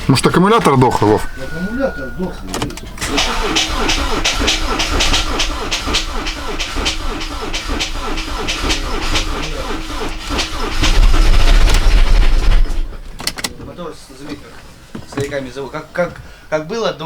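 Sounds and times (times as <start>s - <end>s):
engine cranking by starter: 0.0s - 13.6s
engine low rumble half-catching: 1.3s - 13.2s.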